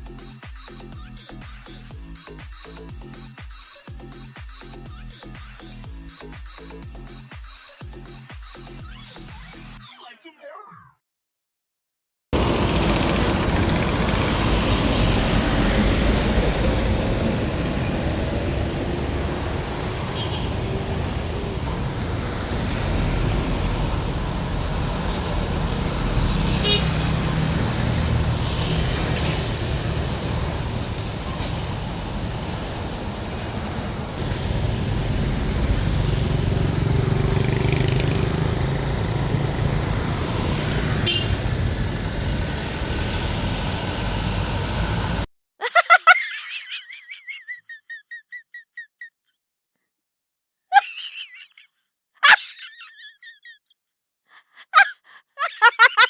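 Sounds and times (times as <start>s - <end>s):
diesel trucks driving past: 12.4s - 45.3s.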